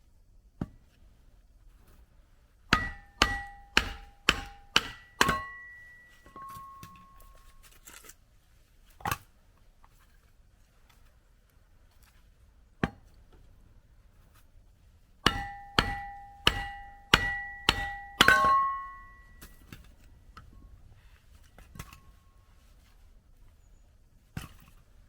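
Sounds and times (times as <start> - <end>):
hammer striking metal: 2.7 - 7.4, 15.2 - 19.5.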